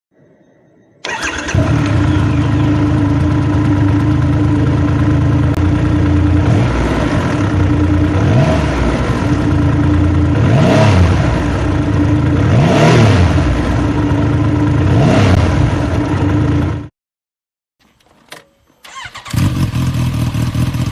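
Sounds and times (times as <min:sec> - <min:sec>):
motorcycle engine idling and revving: 0:01.0 - 0:16.9, 0:18.8 - 0:20.9.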